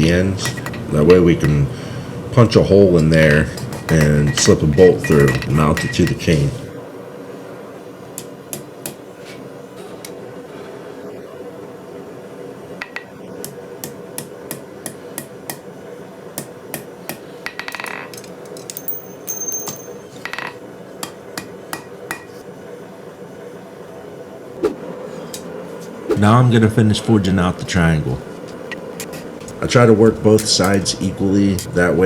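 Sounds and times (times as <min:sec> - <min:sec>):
steady hum: 0:24.5 - 0:32.0.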